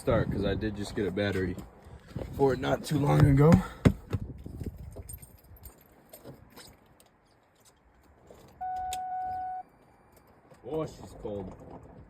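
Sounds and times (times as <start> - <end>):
electronic beep from car: 8.6 - 10.3.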